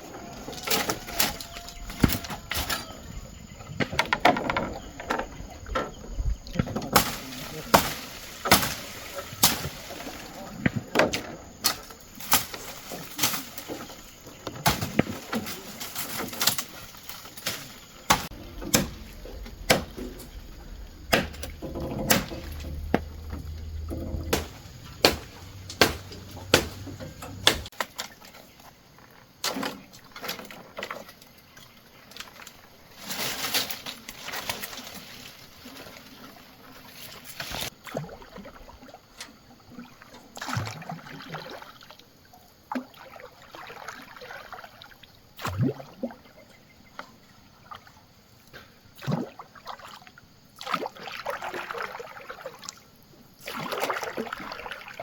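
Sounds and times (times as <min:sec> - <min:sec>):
water sloshing and splashing: 0:00.0 - 0:55.0
sharp knocks: 0:18.1 - 0:27.7
low hum: 0:18.3 - 0:27.6.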